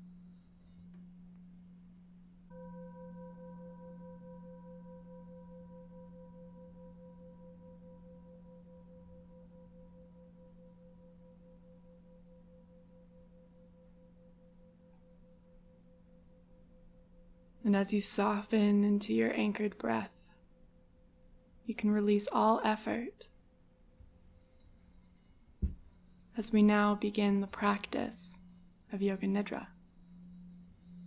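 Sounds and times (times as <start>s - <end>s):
singing bowl ringing: 0.0s - 17.6s, 26.0s - 31.0s
low steady drone: 25.9s - 31.0s.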